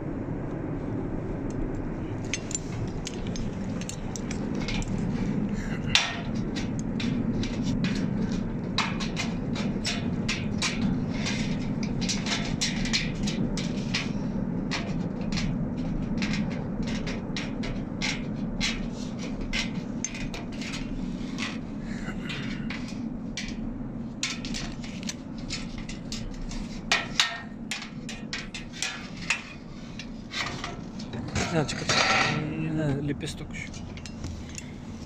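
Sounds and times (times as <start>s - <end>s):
low background rumble: 0.0s - 35.0s
hammering on sheet metal roofing: 5.8s - 21.6s, 22.3s - 30.9s.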